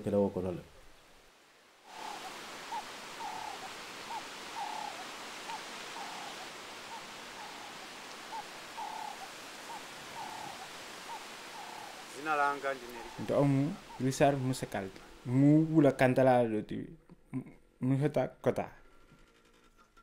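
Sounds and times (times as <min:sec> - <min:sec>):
outdoor ambient hiss: 0:00.0 - 0:20.0
bird whistling calls: 0:02.0 - 0:14.8.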